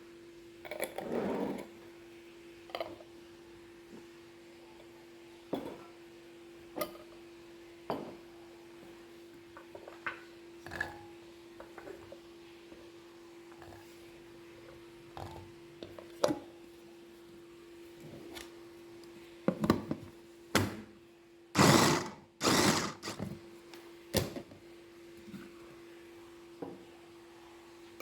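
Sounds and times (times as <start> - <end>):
loud rasping noises: 21.6 - 23.2.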